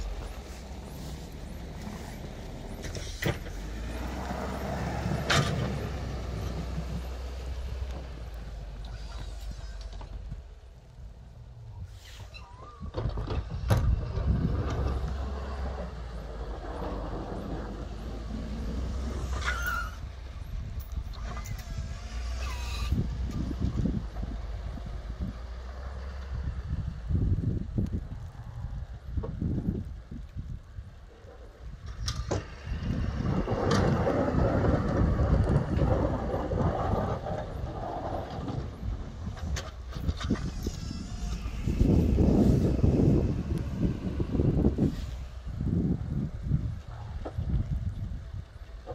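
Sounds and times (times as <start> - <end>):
snow plow engine running: 0.0 - 11.7, 13.4 - 28.9, 31.4 - 48.9
short squeak: 12.0 - 12.9, 19.3 - 20.0, 21.3 - 23.0.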